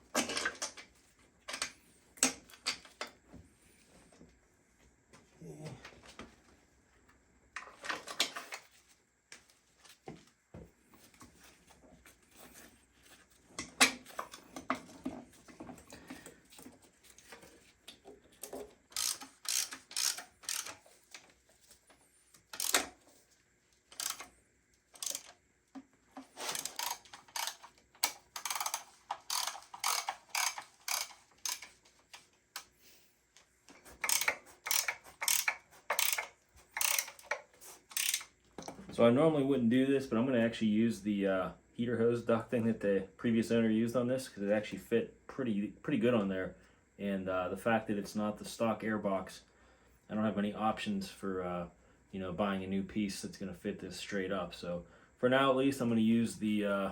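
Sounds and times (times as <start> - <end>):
ratchet wrench clicking: 18.9 - 20.8, 22.5 - 22.9, 23.9 - 24.3, 24.9 - 25.3, 26.5 - 31.7, 34.0 - 38.3.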